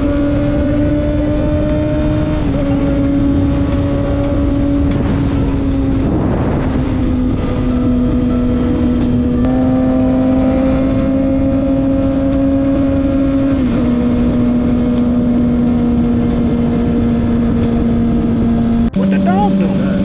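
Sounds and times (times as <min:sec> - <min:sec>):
motorcycle engine at high revs: 0:00.0 - 0:20.0
wind rushing: 0:00.8 - 0:13.1.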